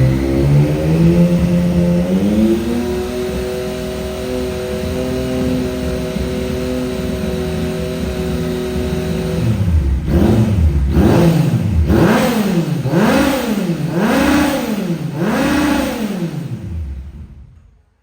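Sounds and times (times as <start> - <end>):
motorcycle engine revving: 0.0 - 17.6.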